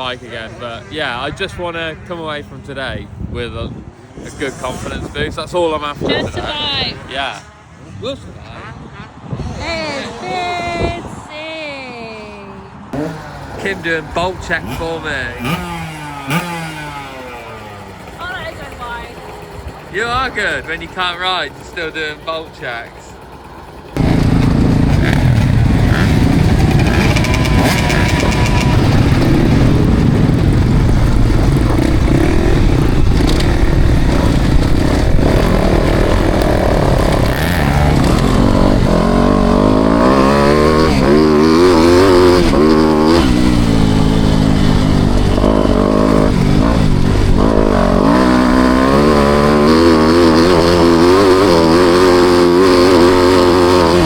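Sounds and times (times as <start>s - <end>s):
motocross bike engine revving: 12.8s - 54.0s.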